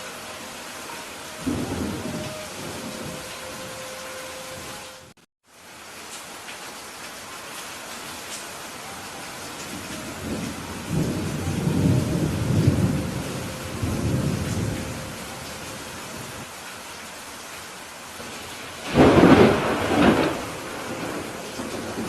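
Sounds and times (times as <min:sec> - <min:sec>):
steady rain: 0:00.0 - 0:22.0
thunder rumbling: 0:01.3 - 0:05.1, 0:09.6 - 0:16.4, 0:18.2 - 0:22.0
sharp thunderclap: 0:18.8 - 0:22.0.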